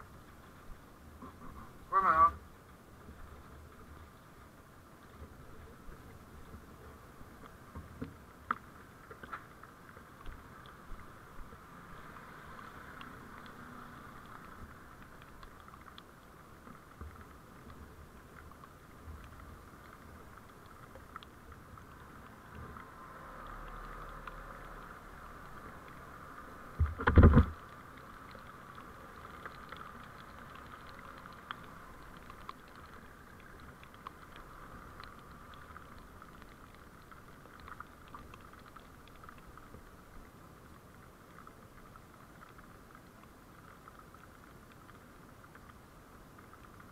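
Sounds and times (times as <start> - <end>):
faint ticks and rattles: 0.0 - 46.9
muffled vehicle driving noise: 9.3 - 15.3, 21.5 - 36.6.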